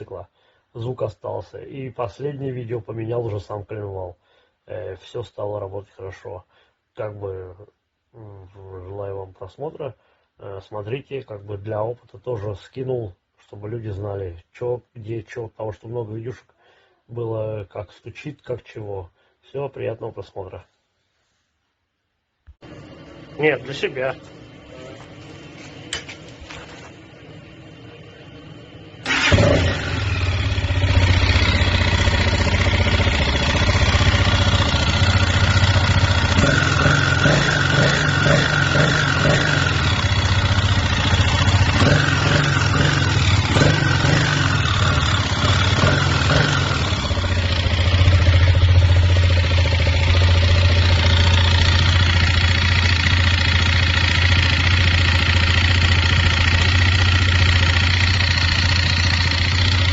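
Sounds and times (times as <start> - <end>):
motorcycle engine starting and running: 22.6 - 59.9
engine knock: 31.1 - 59.9.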